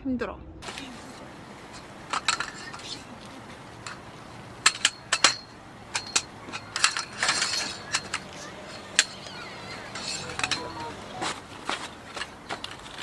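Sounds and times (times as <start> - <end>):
gear clicking and clinking: 0.6 - 13.0
faint metallic ring: 0.7 - 12.4.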